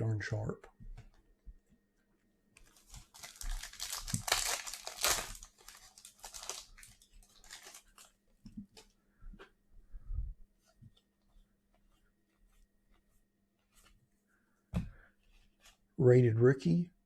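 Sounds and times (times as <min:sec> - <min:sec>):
wrapper crinkling and tearing: 0:02.6 - 0:08.2.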